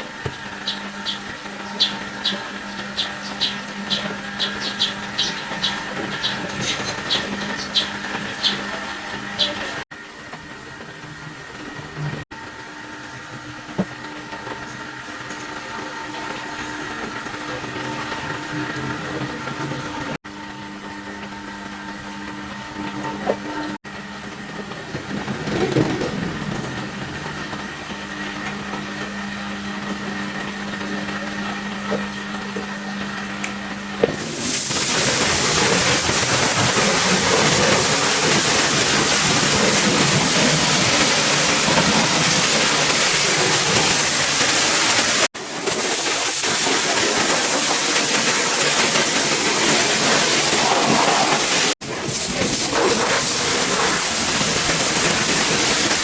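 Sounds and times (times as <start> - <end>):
machine humming: 0.0 - 56.0
pressure washer spray hissing: 34.1 - 56.0.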